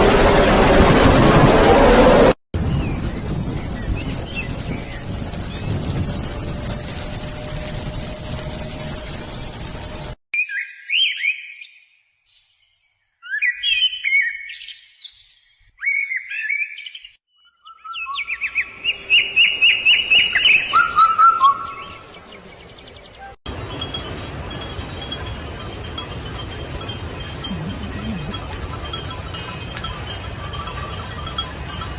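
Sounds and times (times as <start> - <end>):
songbirds singing: 10.4 - 23.4.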